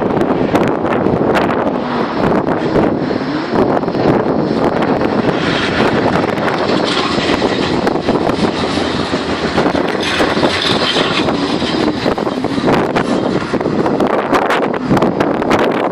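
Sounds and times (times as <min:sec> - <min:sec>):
tram rumbling on rails: 0:00.0 - 0:15.9.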